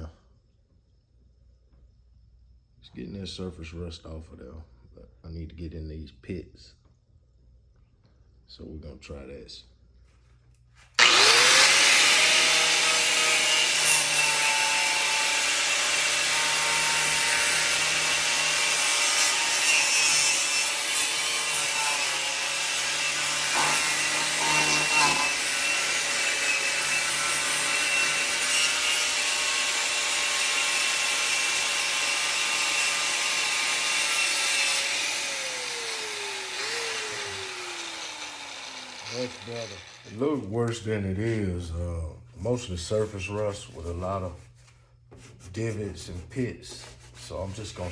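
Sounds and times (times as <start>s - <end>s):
electric grinder grinding metal: 11.0s - 40.2s.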